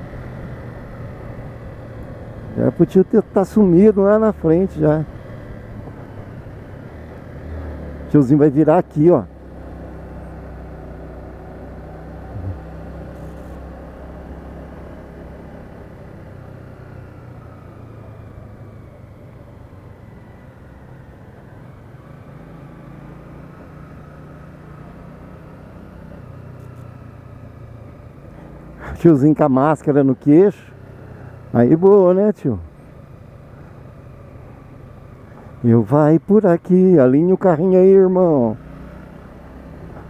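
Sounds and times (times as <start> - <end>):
motorcycle engine running: 0.0 - 19.5
road and wind noise: 0.0 - 40.0.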